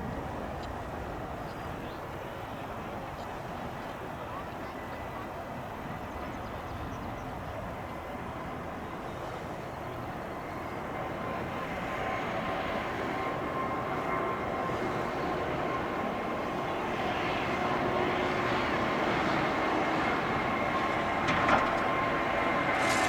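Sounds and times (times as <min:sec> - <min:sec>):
jet engines whining: 0:14.7 - 0:23.0.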